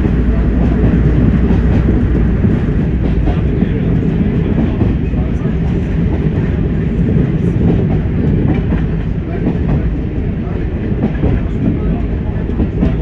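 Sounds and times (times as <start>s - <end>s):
train engine and wheels rumbling: 0.0s - 13.0s.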